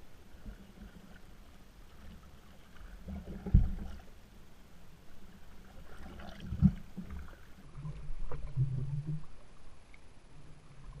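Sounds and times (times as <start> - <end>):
water lapping against canoe hull: 0.0 - 4.2, 5.4 - 9.5.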